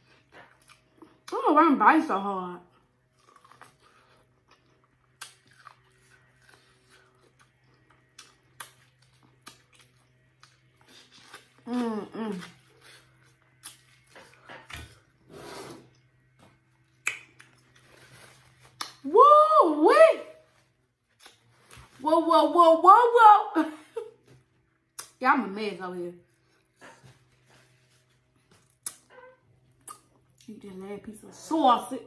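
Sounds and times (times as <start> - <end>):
person chewing corn: 0.0 - 1.4, 3.0 - 19.0, 28.3 - 29.1.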